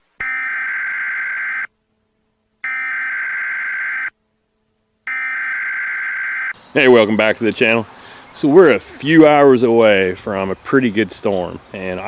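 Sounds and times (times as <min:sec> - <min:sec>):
buzzy warbling data bursts: 0:02.6 - 0:04.1, 0:05.1 - 0:06.6.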